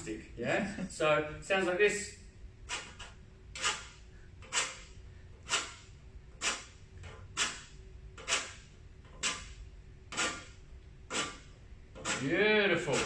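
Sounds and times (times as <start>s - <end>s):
stick scraping metal grater: 2.6s - 13.0s.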